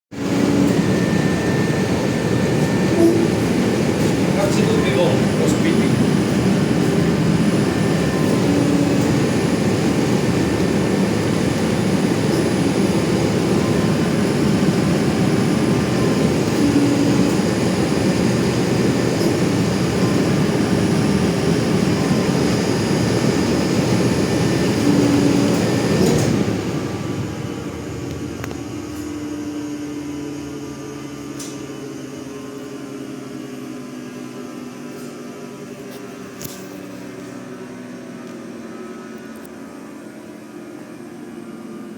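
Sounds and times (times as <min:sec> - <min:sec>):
cnc machine running: 0:00.2 - 0:41.9
machine hum with low tones: 0:00.2 - 0:41.9
short low tone: 0:03.0 - 0:03.4.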